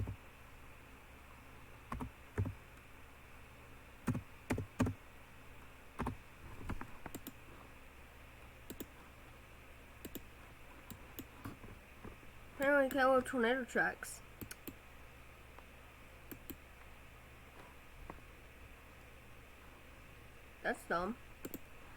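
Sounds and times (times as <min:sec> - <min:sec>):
faint low hum: 0:00.0 - 0:21.9
keyboard and mouse clicks: 0:01.9 - 0:02.6, 0:04.1 - 0:05.0, 0:06.0 - 0:07.4, 0:08.7 - 0:09.0, 0:10.0 - 0:10.3, 0:10.9 - 0:11.7, 0:14.4 - 0:14.8, 0:16.3 - 0:16.6, 0:21.4 - 0:21.7.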